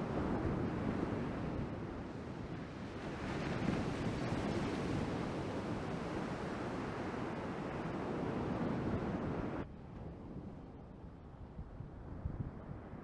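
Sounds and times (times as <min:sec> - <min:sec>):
ocean surf: 0:02.7 - 0:09.6.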